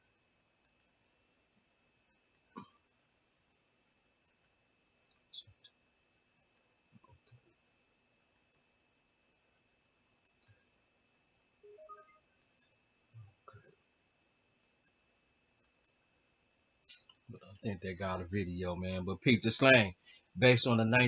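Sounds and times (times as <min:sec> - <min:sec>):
computer mouse clicking: 0:00.6 - 0:01.0, 0:02.1 - 0:02.5, 0:04.2 - 0:05.2, 0:06.3 - 0:07.5, 0:08.3 - 0:08.7, 0:10.2 - 0:10.6, 0:14.6 - 0:15.0, 0:15.6 - 0:16.0.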